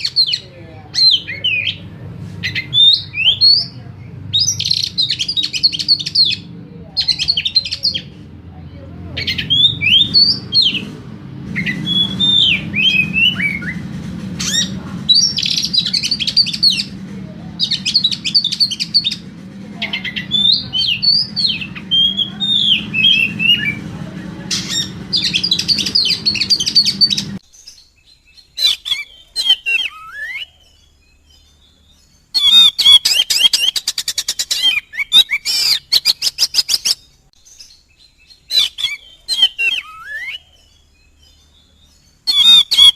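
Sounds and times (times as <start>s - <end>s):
bird singing whistles and chatter: 0.0s - 8.3s, 9.0s - 42.9s
low hum: 0.8s - 27.4s.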